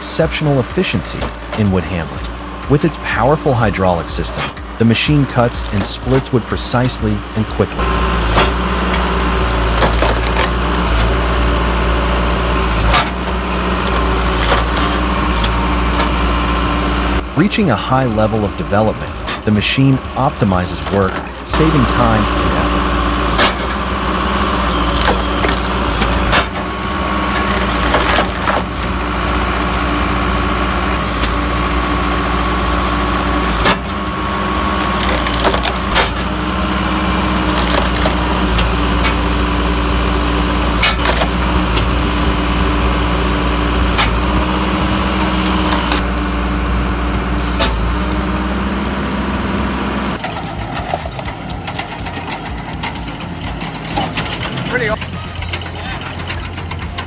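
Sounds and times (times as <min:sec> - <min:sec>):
firewood processor engine droning: 0:00.0 - 0:57.0
sharp cracks of logs splitting: 0:07.8 - 0:17.2, 0:20.2 - 0:42.6, 0:43.3 - 0:46.1.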